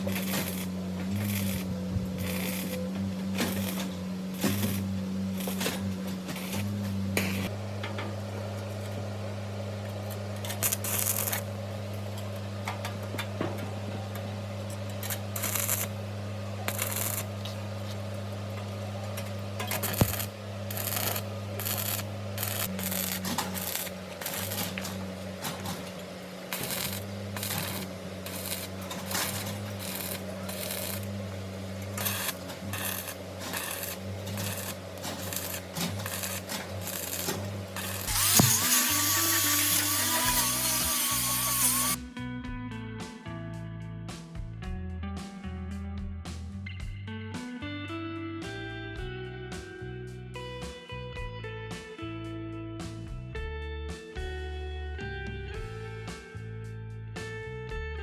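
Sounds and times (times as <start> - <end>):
short scraping strokes: 0.0 - 7.5, 19.6 - 42.0
steady low hum: 0.0 - 42.0.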